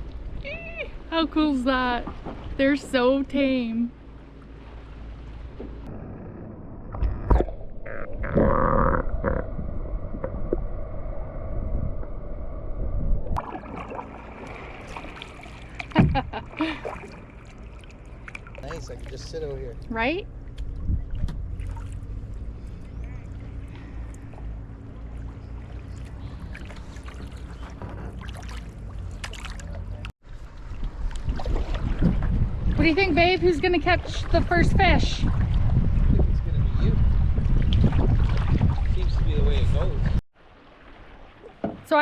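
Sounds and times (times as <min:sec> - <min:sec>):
steady low rumble: 0:00.0 - 0:40.2
water sloshing around kayak: 0:13.4 - 0:36.4, 0:37.0 - 0:42.0.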